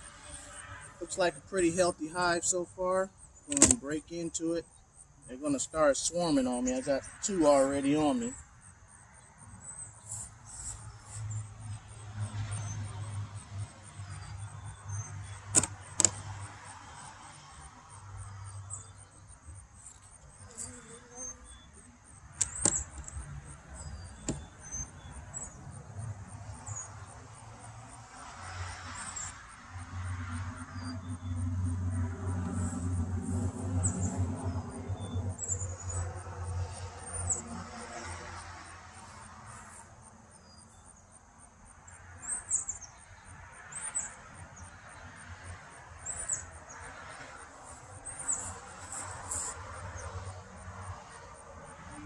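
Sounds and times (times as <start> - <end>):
knocks of wooden hive parts: 3.5 - 3.8, 15.5 - 16.2, 22.4 - 23.2, 24.2 - 24.5.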